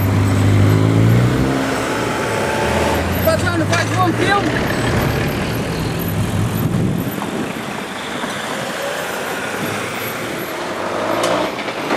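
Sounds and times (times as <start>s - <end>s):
freight train wheel and rail noise: 11.2s - 11.9s.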